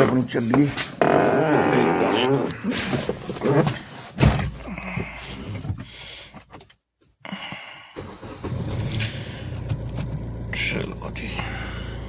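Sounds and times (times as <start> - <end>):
car engine running: 8.0 - 12.0.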